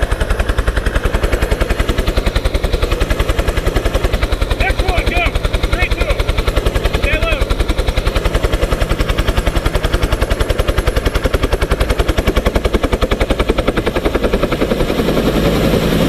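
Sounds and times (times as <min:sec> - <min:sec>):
helicopter engine hum: 0:00.0 - 0:16.0
helicopter rotor blades chopping: 0:00.0 - 0:16.0.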